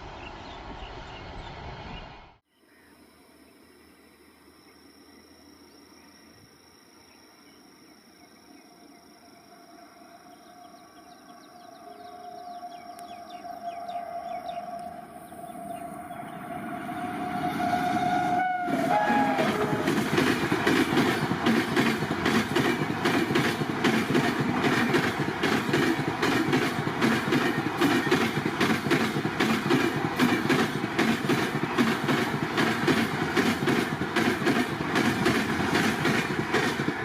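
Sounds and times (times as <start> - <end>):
train rumble: 9.6 - 37.0
train horn: 11.8 - 20.2
train wheels clickety-clack: 18.7 - 37.0.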